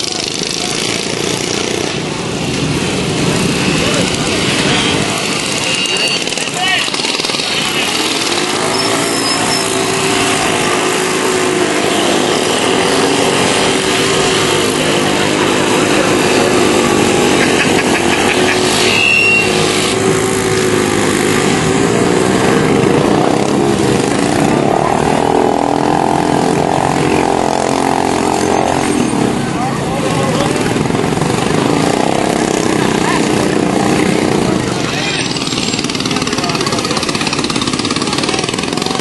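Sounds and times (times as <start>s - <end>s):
mini bike engines revving: 0.0s - 39.0s
high-pitched squeal: 4.6s - 23.7s.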